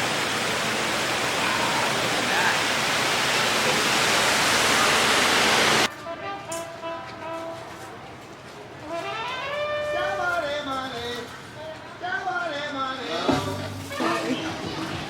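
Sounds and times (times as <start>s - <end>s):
falling water rushing: 0.0s - 5.9s.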